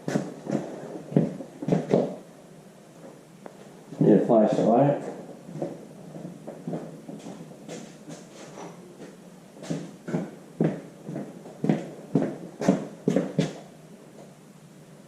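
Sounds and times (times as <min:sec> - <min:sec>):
footsteps: 0:00.0 - 0:02.2, 0:03.0 - 0:14.3.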